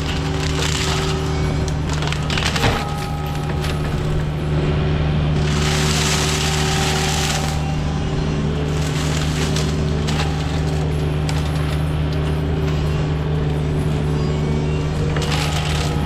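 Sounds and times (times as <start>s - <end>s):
diesel engine running under load: 0.0s - 16.0s
mulcher grinding brush and wood: 0.0s - 16.0s
wood chipping burst: 5.4s - 11.8s.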